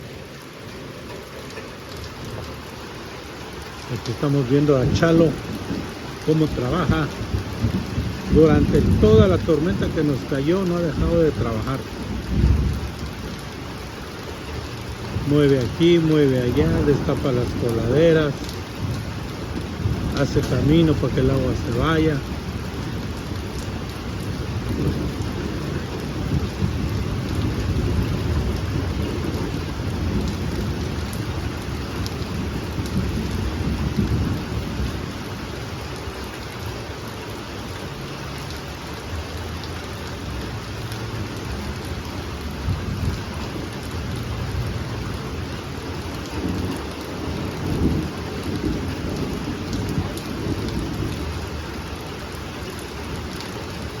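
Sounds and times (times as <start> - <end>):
heavy rain falling: 0.0 - 54.0
low rumbling thunder: 3.9 - 13.4, 14.8 - 35.3, 42.4 - 51.9.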